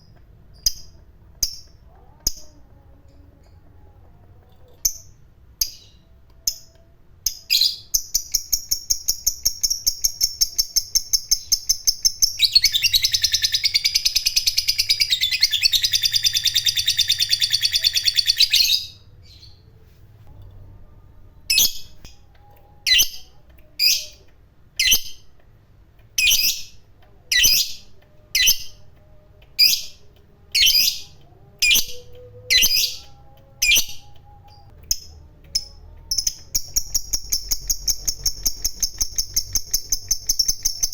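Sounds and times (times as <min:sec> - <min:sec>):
sharp bird chirps: 0:07.4 - 0:19.5, 0:35.6 - 0:40.9
lovebird chattering trill: 0:07.6 - 0:18.9, 0:35.6 - 0:40.9.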